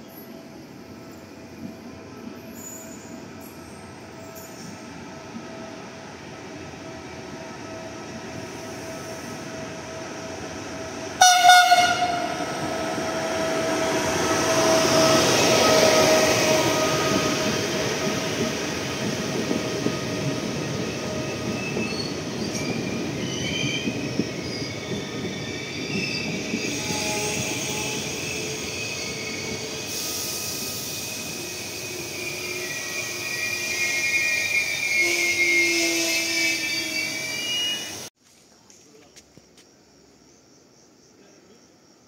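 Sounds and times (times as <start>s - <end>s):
train hum: 0.0s - 38.7s
train horn blast: 11.2s - 13.8s, 34.9s - 37.7s
wheel squeals: 21.3s - 38.1s.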